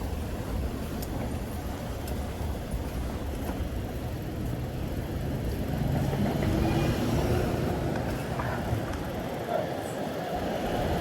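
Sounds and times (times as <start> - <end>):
city street traffic: 0.0 - 11.0
vehicle engine: 0.0 - 11.0.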